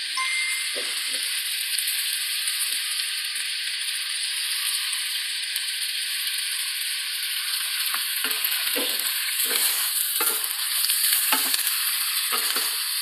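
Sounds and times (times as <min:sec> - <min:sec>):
meat and onions sizzling in wok: 0:00.0 - 0:13.0.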